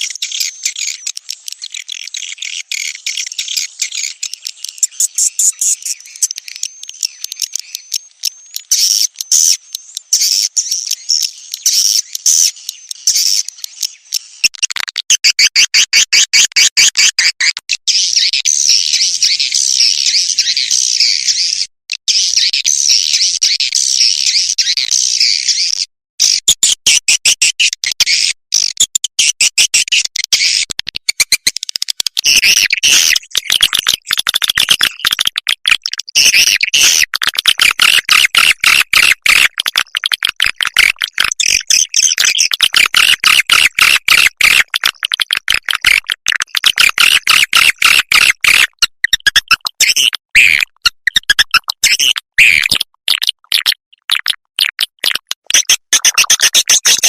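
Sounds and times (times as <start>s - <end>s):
rapid clicks: 37.1s - 57.0s.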